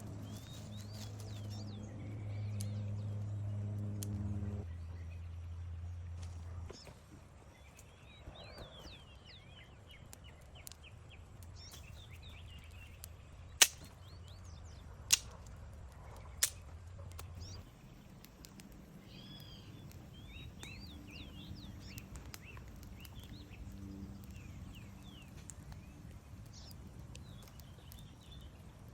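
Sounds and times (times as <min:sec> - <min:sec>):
low steady hum: 0:00.0 - 0:28.9
loud sharp cracks: 0:13.5 - 0:14.1, 0:15.1 - 0:15.5, 0:16.4 - 0:16.7.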